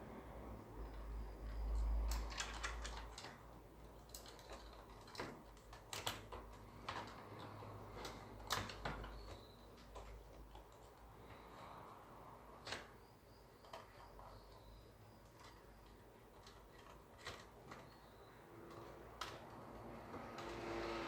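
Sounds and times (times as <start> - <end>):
small tools clicking and tapping: 0.9 - 11.2.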